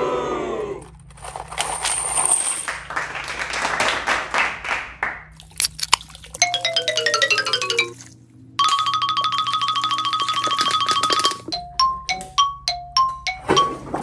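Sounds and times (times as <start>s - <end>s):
descending chiming tune: 6.4s - 14.0s.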